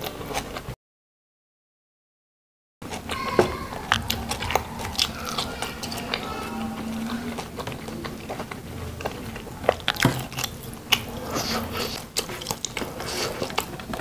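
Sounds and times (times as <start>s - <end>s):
mouth chewing with wet clicks: 7.6s - 14.0s.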